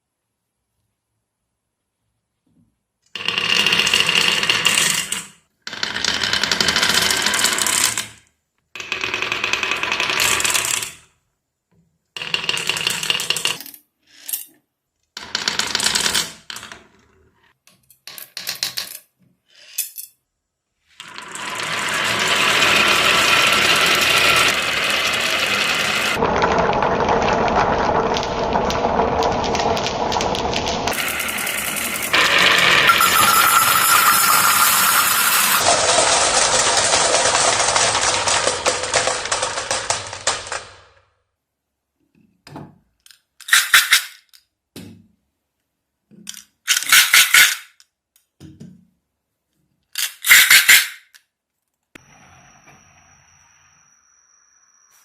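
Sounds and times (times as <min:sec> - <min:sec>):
marbles rolling down tracks: 0:03.2 - 0:08.2, 0:08.8 - 0:11.0, 0:12.2 - 0:14.4, 0:21.0 - 0:41.1, 0:50.0 - 0:51.1.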